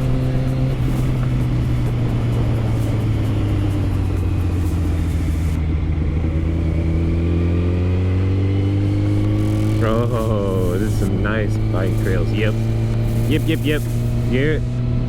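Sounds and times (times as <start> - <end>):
wind hiss: 0.0 - 6.0, 9.3 - 14.9
motorcycle engine running: 0.0 - 15.0.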